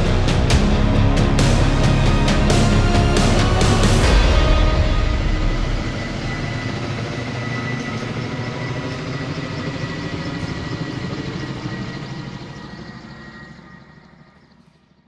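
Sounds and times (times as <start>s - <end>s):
high whine: 0.0s - 14.8s
helicopter rotor and engine noise: 0.0s - 15.0s.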